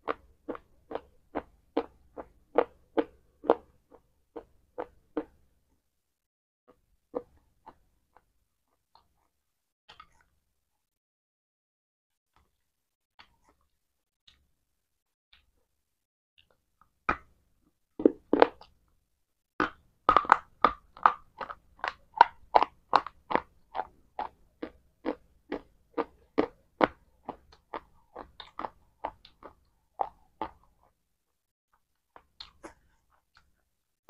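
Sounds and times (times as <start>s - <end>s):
person chewing fruit: 0.0s - 5.4s, 7.1s - 9.3s, 18.0s - 18.8s, 19.6s - 31.0s, 31.8s - 33.6s.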